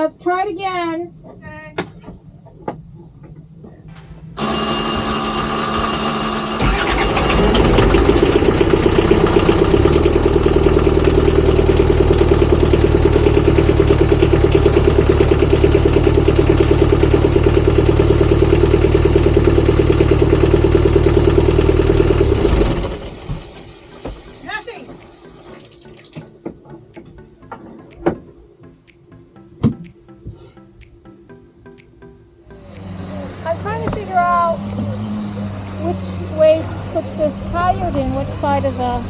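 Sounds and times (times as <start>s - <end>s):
starter motor cranking: 3.9s - 23.8s
electric warning buzzer: 3.9s - 24.4s
diesel engine idling: 5.8s - 23.9s, 36.2s - 39.0s.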